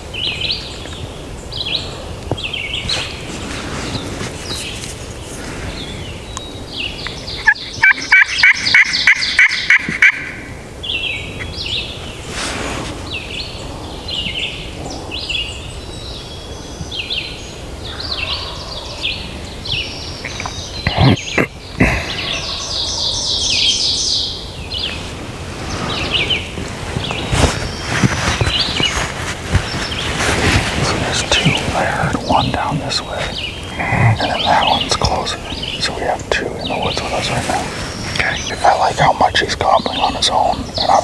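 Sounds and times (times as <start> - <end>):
songbirds chirping: 0.0 - 41.0
turkey gobbling: 7.3 - 10.6.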